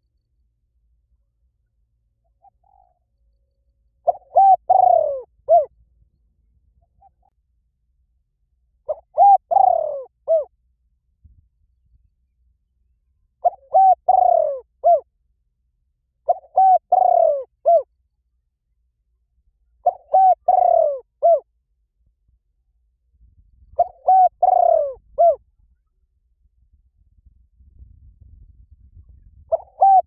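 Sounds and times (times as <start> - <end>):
dove cooing: 2.4 - 3.0, 4.0 - 5.7, 8.9 - 10.5, 13.4 - 15.1, 16.2 - 17.9, 19.8 - 21.5, 23.8 - 25.4, 29.5 - 30.0.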